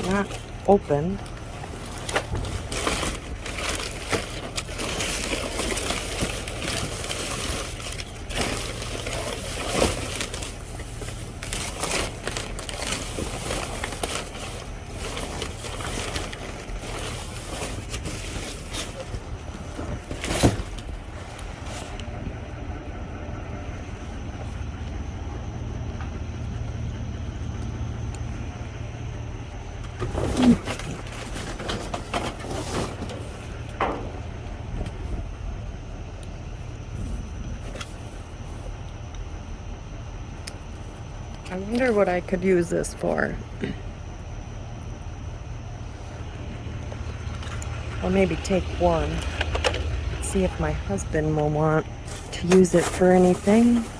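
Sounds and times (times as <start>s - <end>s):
rustling and clattering of bags: 0.0s - 22.9s, 29.6s - 35.5s, 43.0s - 53.9s
steady low hum: 0.0s - 53.9s.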